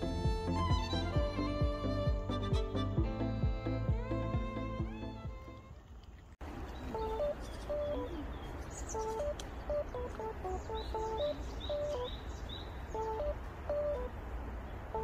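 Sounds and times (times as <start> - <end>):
low outdoor rumble: 0.0 - 15.0
wild birds singing: 5.8 - 15.0
high bird chirps: 6.7 - 14.1.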